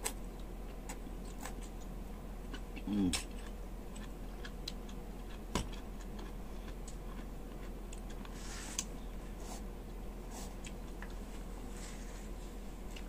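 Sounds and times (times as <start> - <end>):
man chewing with mouth clicks: 0.0 - 9.1.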